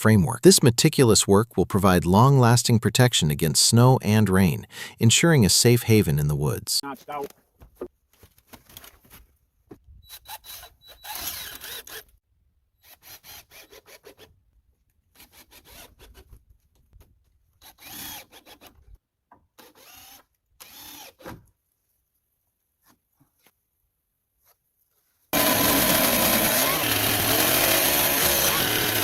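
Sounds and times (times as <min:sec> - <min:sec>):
saw cutting wood: 0:10.1 - 0:12.2, 0:12.8 - 0:14.3, 0:15.2 - 0:16.3, 0:17.6 - 0:18.8, 0:19.6 - 0:21.3, 0:25.4 - 0:29.0.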